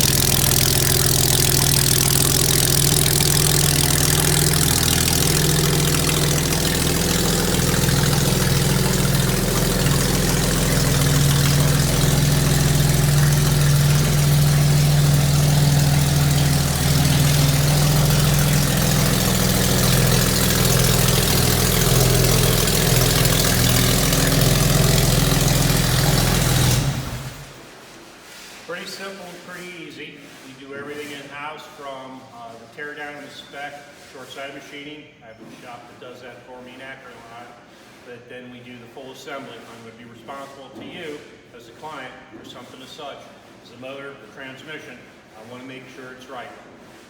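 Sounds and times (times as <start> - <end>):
car engine idling: 0.0 - 27.6.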